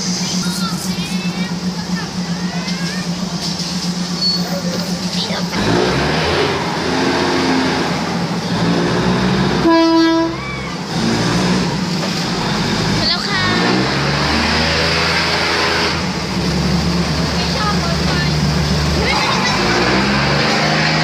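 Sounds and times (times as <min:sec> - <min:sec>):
train running rumble: 0:00.0 - 0:21.0
train horn blast: 0:09.6 - 0:10.4.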